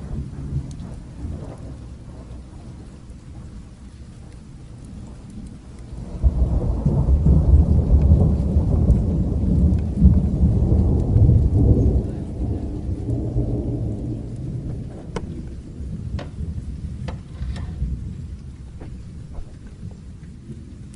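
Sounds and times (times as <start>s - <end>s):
faint crackles: 0.0s - 20.9s
rolling thunder rumble: 0.0s - 20.9s
steady rain: 0.0s - 20.9s.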